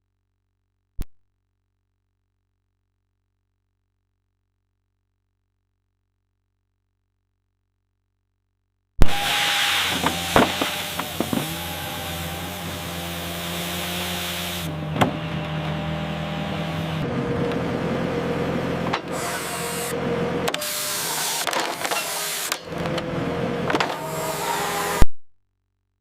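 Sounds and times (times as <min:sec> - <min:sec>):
logging machine engine hum: 0:09.0 - 0:25.0.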